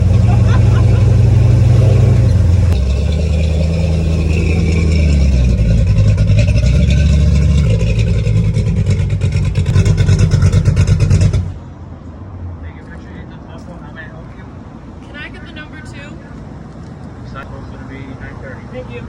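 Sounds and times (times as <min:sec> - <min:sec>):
race car engine idling: 0:00.0 - 0:11.6.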